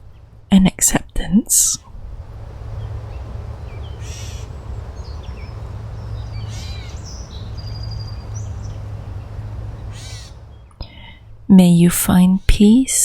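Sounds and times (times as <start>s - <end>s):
low background rumble: 0.0s - 13.0s
harsh bird calls: 1.8s - 10.9s
high bird trill: 2.4s - 10.7s.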